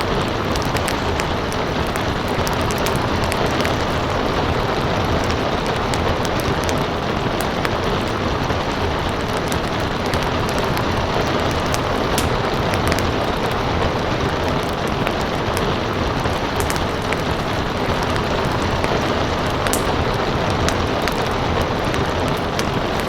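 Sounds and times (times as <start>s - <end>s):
rain hiss: 0.0s - 23.0s
sharp pops of fire: 0.0s - 23.0s
wood fire crackling: 0.0s - 23.0s.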